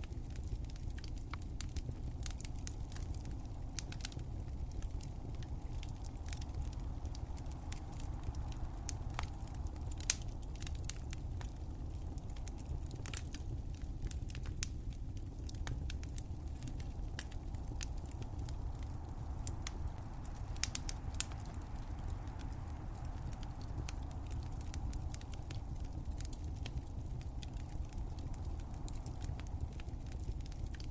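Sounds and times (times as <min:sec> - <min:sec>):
fire crackling: 0:00.0 - 0:30.9.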